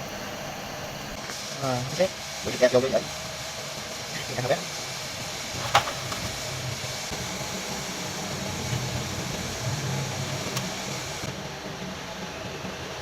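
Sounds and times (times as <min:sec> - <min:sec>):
mechanical running noise: 0:05.5 - 0:11.3.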